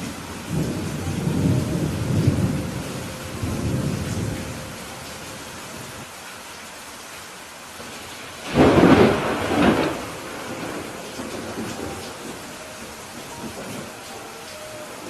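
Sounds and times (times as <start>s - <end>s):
thunder rumble: 0.0s - 4.8s, 8.4s - 15.0s
steady rain: 0.0s - 15.0s.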